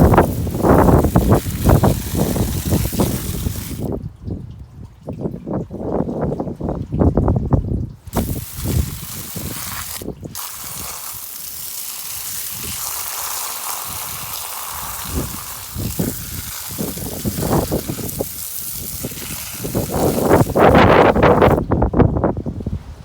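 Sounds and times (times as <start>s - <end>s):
hissing rush of water: 0.0s - 4.1s, 8.0s - 21.8s.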